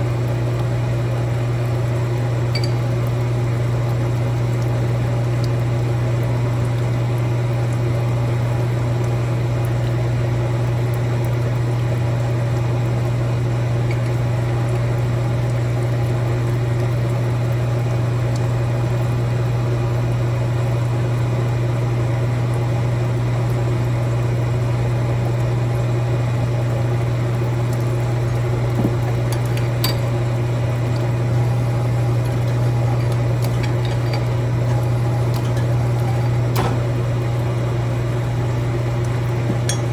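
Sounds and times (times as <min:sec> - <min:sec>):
light metallic clinks: 0:39.5 - 0:39.9.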